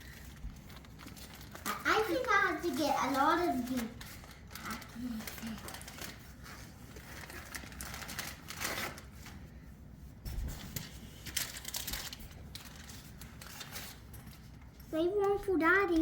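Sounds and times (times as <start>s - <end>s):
plastic wrappers crinkling: 0.0s - 9.6s, 10.7s - 14.9s.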